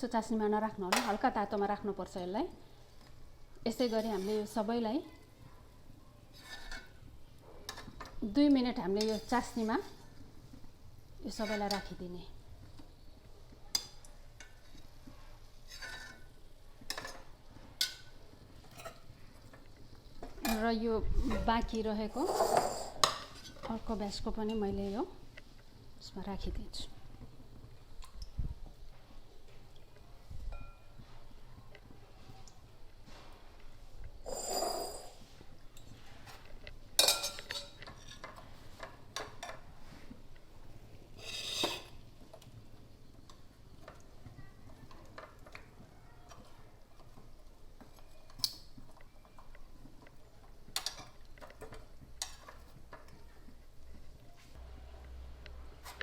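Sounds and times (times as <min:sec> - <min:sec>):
metal utensils clinking on cookware: 0:06.3 - 0:07.0, 0:07.7 - 0:10.0, 0:11.3 - 0:12.1, 0:15.6 - 0:19.6, 0:20.2 - 0:25.0, 0:30.5 - 0:31.0, 0:34.2 - 0:35.2, 0:37.0 - 0:39.7, 0:41.2 - 0:42.3, 0:50.7 - 0:53.2
metal utensil clinking against pan: 0:37.0 - 0:38.4.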